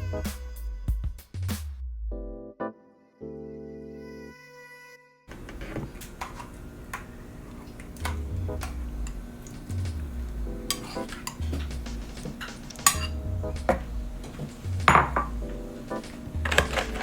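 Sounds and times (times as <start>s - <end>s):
background music bass line: 0.0s - 2.6s, 8.0s - 10.7s, 11.4s - 17.0s
kitchen utensils clinking on cookware: 5.3s - 17.0s.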